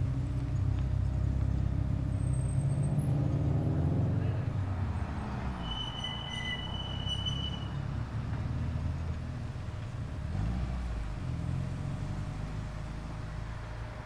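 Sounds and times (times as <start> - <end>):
car engine running at low revs: 0.0 - 5.0, 7.9 - 14.0
thin high whistle: 5.6 - 7.8.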